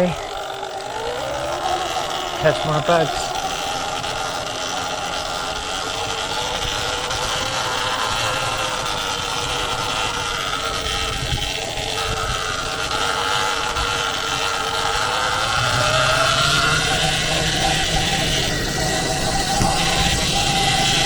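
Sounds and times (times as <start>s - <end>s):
electric dirt bike whine: 0.0s - 21.0s.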